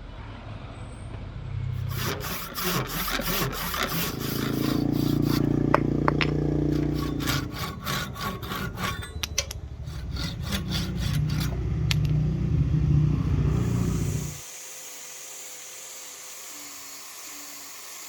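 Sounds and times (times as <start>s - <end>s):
hand tool cutting wood: 1.8s - 12.1s, 13.3s - 18.0s
steady low hum: 1.8s - 14.4s.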